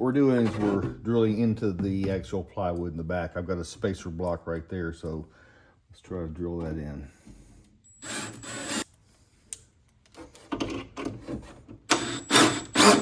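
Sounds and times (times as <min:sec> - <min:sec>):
drill drilling into wood: 0:08.0 - 0:08.8, 0:11.9 - 0:13.0.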